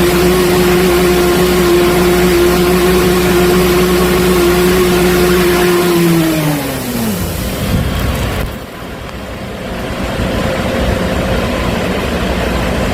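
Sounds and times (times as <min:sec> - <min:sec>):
rushing hiss: 0:00.0 - 0:08.8
drain jetter droning: 0:00.0 - 0:12.9.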